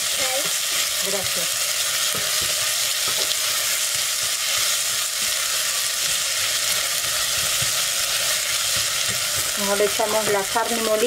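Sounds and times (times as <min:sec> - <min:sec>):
onion frying in oil: 0:00.0 - 0:11.0.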